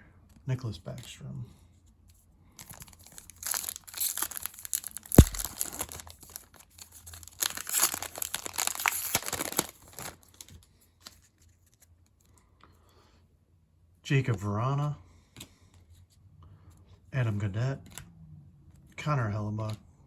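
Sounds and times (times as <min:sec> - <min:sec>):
wrapper tearing and crinkling: 0:02.6 - 0:11.2
sharp thump: 0:05.1 - 0:05.8.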